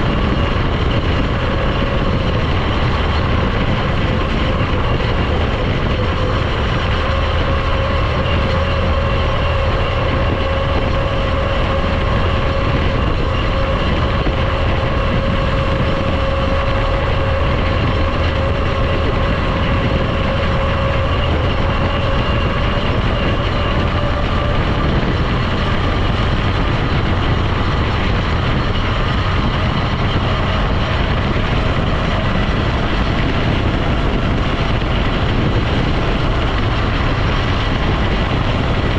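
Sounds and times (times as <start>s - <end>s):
faint steady whine: 0.0s - 38.9s
vehicle engine and road drone: 0.0s - 38.9s.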